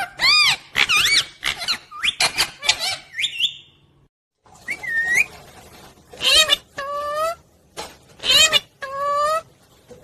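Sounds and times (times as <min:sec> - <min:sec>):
parrot calls: 0:00.0 - 0:03.8, 0:06.2 - 0:07.4, 0:08.2 - 0:09.5.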